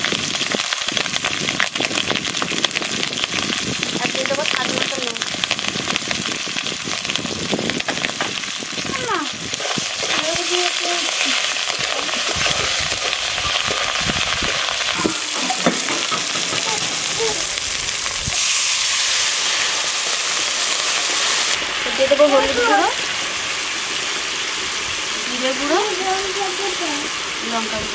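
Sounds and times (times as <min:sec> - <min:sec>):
spices sizzling in hot oil: 0:00.0 - 0:27.9
metal spatula scraping a pan: 0:11.8 - 0:17.2.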